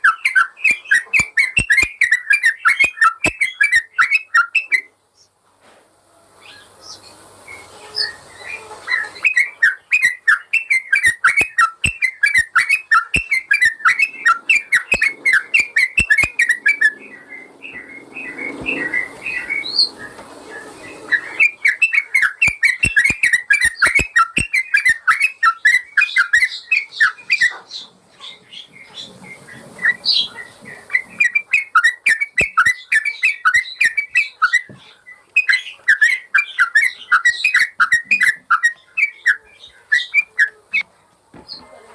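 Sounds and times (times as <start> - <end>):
bird singing bubbly whistled notes: 0.0 - 4.9, 7.5 - 27.8, 29.0 - 34.7
sharp clicks: 14.9 - 16.5, 22.4 - 24.6.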